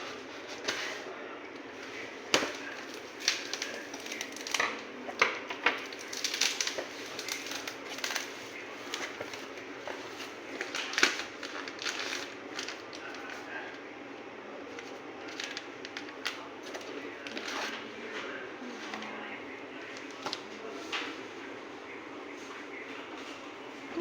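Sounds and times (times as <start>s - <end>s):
packaging crinkling: 1.8s - 4.8s, 5.6s - 13.9s, 14.7s - 17.9s.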